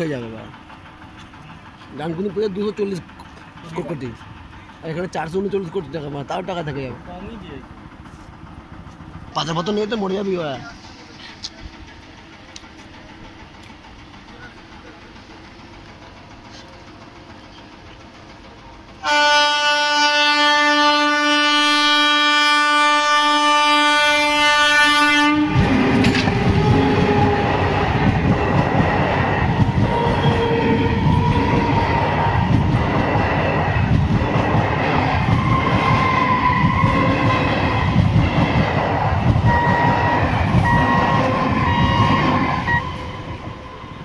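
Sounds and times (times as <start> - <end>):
train passing with rumble: 0.0 - 44.0
train horn: 19.0 - 27.7, 29.9 - 32.0, 35.3 - 37.6, 39.5 - 44.0
wheels clattering over rail joints: 25.5 - 42.9.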